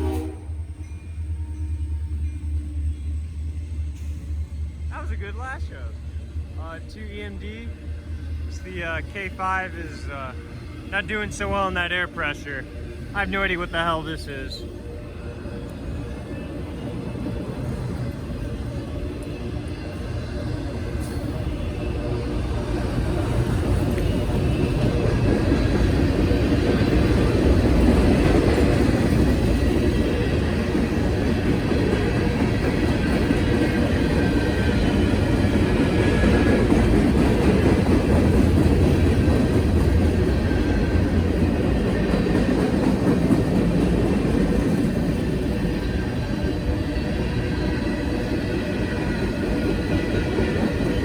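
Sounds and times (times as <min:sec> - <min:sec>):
freight train wheels rumbling on rails: 0:00.0 - 0:51.0.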